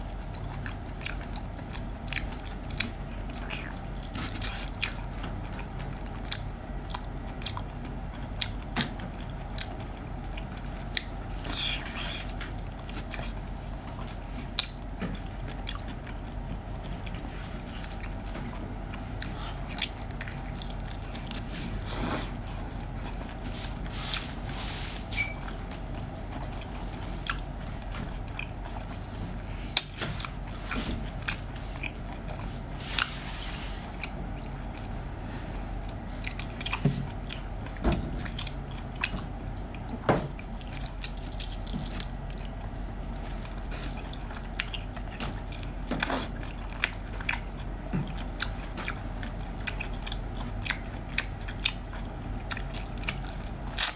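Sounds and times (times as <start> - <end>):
person biting and chewing food: 8.4 - 24.5, 43.4 - 53.9.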